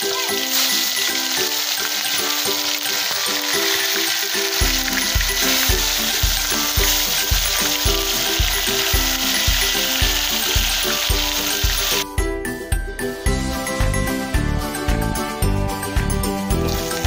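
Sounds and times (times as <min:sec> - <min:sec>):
tomato slices sizzling in oil: 0:00.0 - 0:12.0, 0:16.5 - 0:17.0
background music with steady beat: 0:03.1 - 0:17.0.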